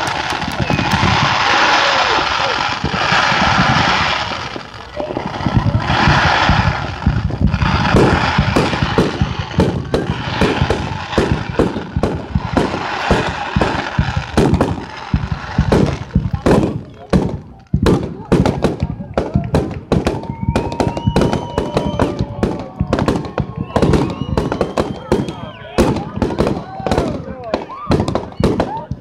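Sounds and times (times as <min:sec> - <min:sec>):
fireworks sparks hissing: 0:00.0 - 0:18.9
fireworks bangs: 0:00.0 - 0:29.0.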